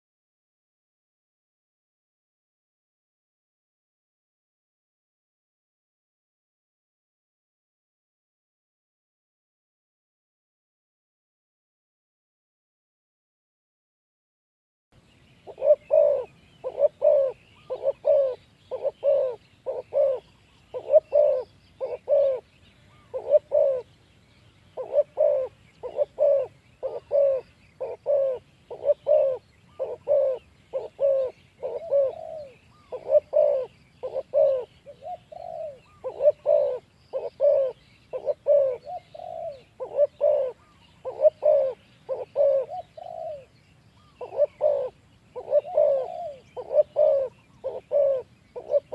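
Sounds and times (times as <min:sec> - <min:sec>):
small birds chirping: 0:15.0 - 0:48.9
dove cooing: 0:15.4 - 0:24.0, 0:24.7 - 0:48.9.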